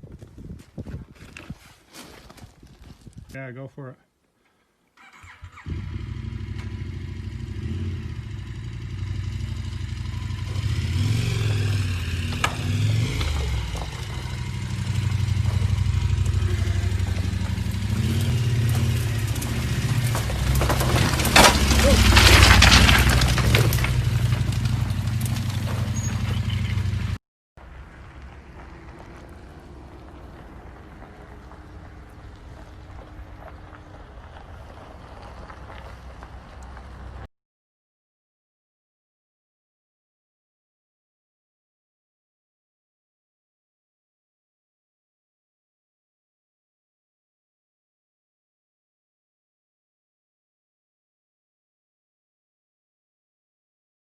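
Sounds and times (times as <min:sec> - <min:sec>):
motorcycle engine running: 0:05.5 - 0:20.7, 0:23.6 - 0:27.2
loud clattering: 0:18.5 - 0:26.0.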